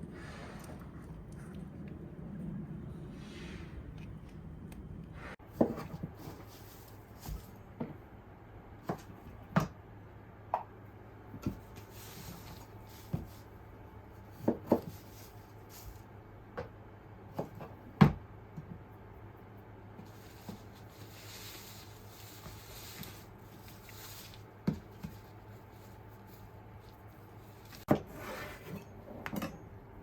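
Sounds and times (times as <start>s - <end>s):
faint low hum: 0.0s - 17.3s.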